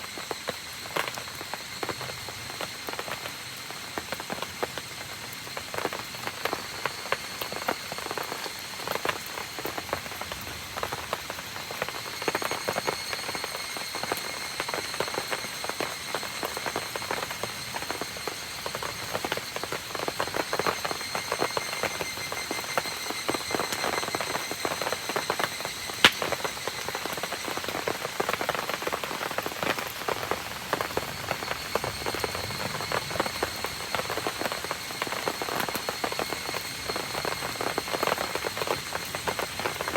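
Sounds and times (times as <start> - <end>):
rain pattering: 0.0 - 39.9
sharp crack: 26.0 - 26.3.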